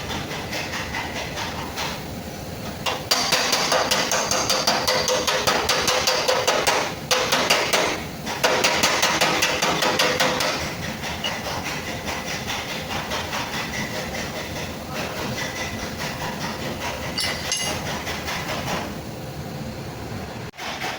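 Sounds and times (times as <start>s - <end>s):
hammer tapping sheet metal: 2.8s - 14.6s.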